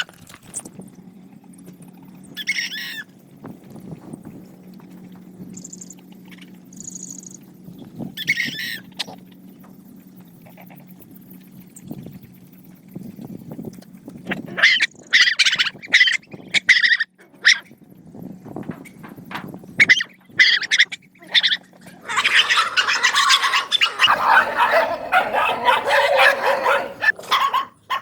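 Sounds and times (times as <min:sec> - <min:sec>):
puppies yelping and whining: 0:14.3 - 0:17.7, 0:19.8 - 0:28.0.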